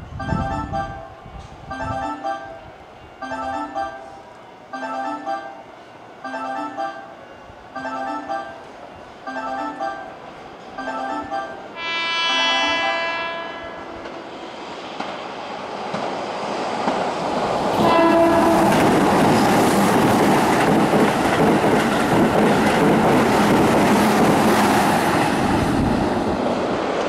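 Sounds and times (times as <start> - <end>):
electric train passing at speed: 0.0 - 27.0
train horn blast: 11.8 - 14.1, 17.8 - 19.3
train wheel clatter: 14.9 - 27.0.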